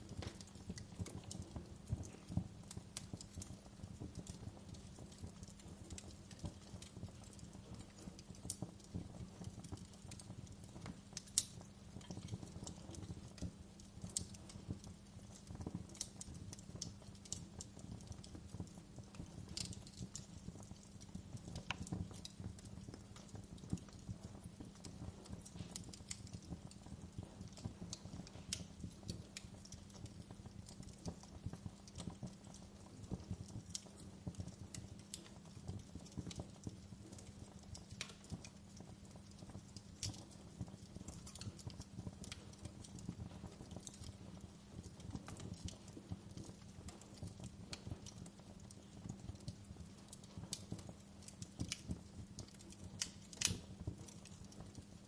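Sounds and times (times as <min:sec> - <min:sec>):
wood fire burning: 0:00.0 - 0:55.0.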